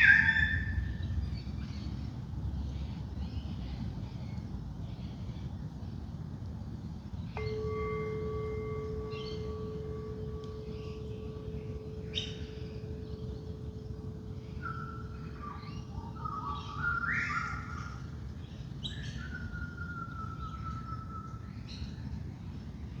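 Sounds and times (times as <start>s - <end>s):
low background rumble: 0.0s - 23.0s
singing bowl hum: 7.2s - 22.0s.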